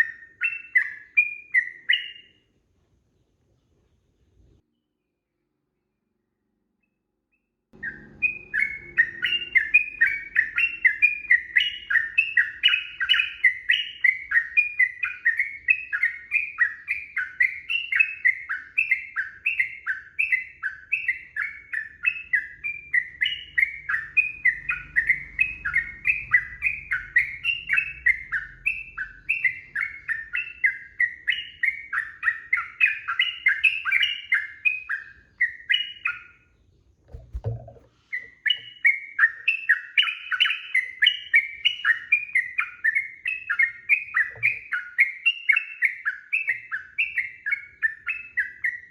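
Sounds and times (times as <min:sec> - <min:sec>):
bird chirping quick notes: 0:07.8 - 0:14.4.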